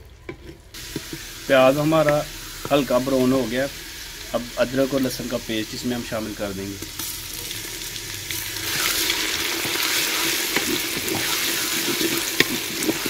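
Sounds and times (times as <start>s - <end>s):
paste sizzling in hot oil: 0.7s - 13.0s
wooden spoon scraping a pot: 8.3s - 13.0s.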